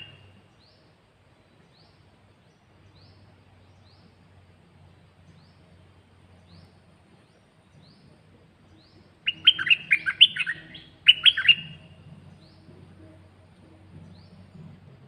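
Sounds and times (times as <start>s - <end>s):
songbird warbling: 0.0s - 0.8s, 8.6s - 12.7s.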